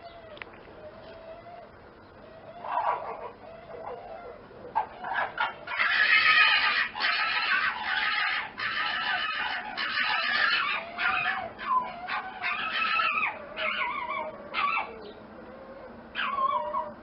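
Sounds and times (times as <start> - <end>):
animal calling: 0.0 - 17.0.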